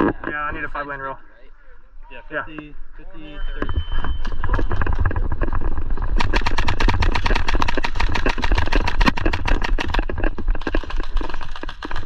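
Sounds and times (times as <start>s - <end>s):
airsoft gun rapid fire: 6.1s - 12.0s.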